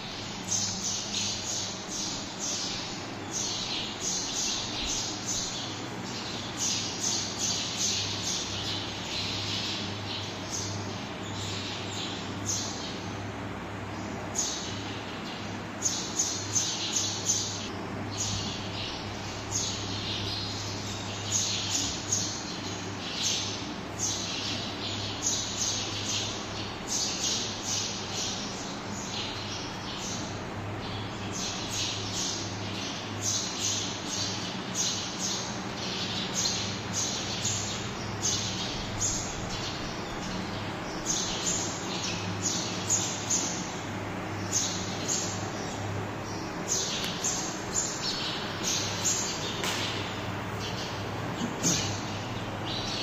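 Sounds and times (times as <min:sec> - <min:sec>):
flock of small birds chirping: 0:00.0 - 0:53.0
steady low hum: 0:00.0 - 0:53.0.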